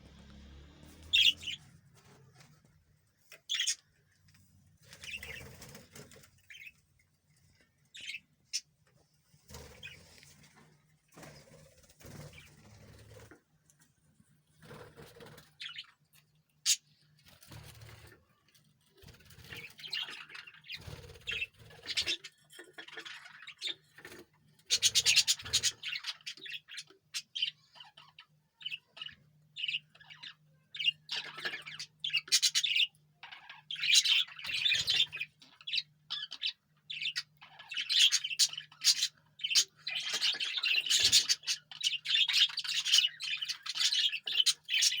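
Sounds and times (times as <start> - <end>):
faint low hum: 0.0 - 8.2
parrot chirping and squawking: 1.0 - 1.7, 3.5 - 3.9, 24.7 - 45.0.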